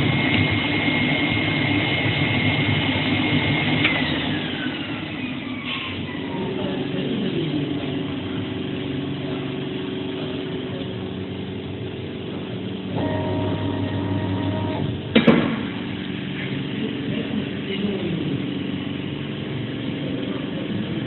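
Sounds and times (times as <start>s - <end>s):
second motor tone: 6.1s - 8.1s, 12.9s - 15.1s
cutting plotter motor whine: 6.1s - 21.0s.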